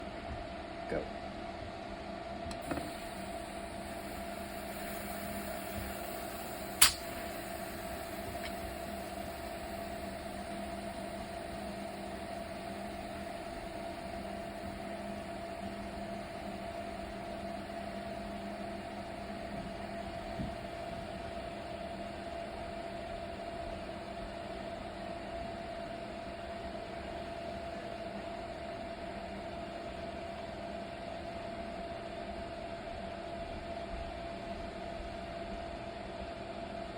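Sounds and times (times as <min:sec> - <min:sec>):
sandblaster hissing: 0:02.6 - 0:21.6
sharp click: 0:06.8 - 0:07.2.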